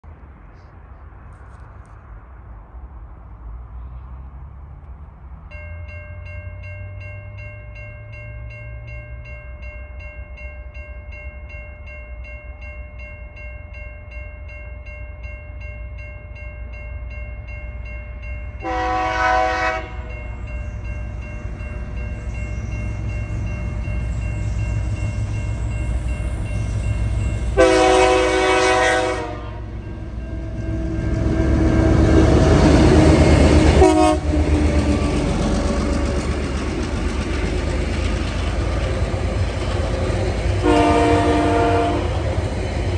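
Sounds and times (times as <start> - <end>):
locomotive rumble: 17.4 - 42.9
locomotive horn blasts: 18.6 - 20.1, 27.6 - 32.2, 33.6 - 34.5, 40.6 - 42.2.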